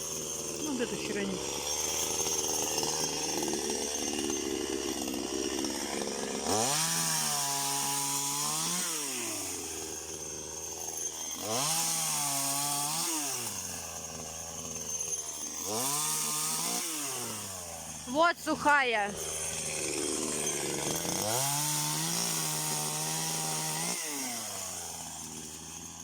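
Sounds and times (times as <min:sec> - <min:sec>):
chainsaw idling and revving: 0:00.0 - 0:26.0.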